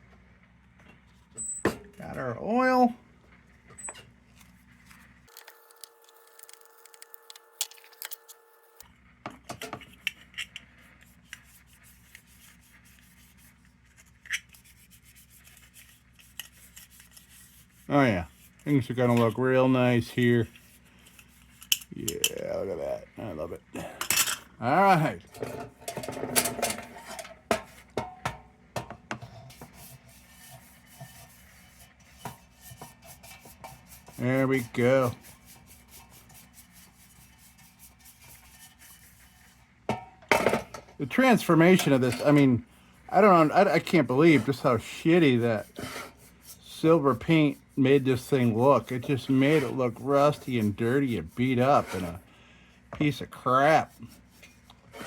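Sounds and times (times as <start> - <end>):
cloth rubbing on steel: 4.4 - 8.8, 10.8 - 21.8, 29.5 - 39.8, 41.1 - 52.3
metal parts clicking and tapping: 5.3 - 8.5
faint steady hum: 38.2 - 55.0.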